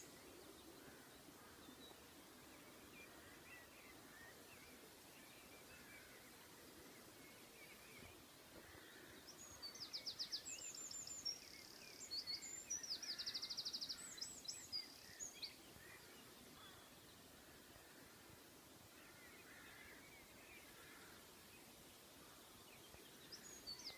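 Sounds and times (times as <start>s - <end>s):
songbird singing trills: 0.0s - 17.2s, 22.3s - 23.9s
faint distant birdsong: 0.0s - 23.9s.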